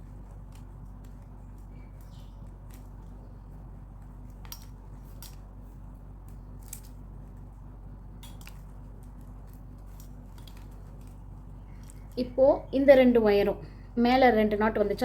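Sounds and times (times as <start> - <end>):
steady low hum: 0.0 - 15.0
plastic strips clicking and crackling: 8.2 - 12.2.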